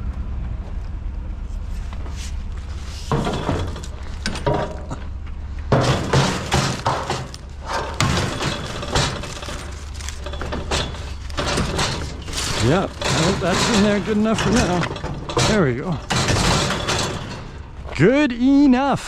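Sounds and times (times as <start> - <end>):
metal clanking against metal: 3.0 - 18.0.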